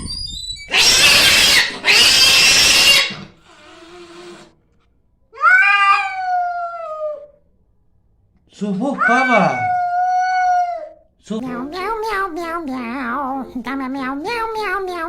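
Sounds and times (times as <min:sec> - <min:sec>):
cat yowling: 0:00.7 - 0:04.5, 0:05.4 - 0:07.4, 0:08.9 - 0:11.0
cat hissing: 0:00.7 - 0:04.6, 0:05.4 - 0:07.3, 0:08.9 - 0:11.0.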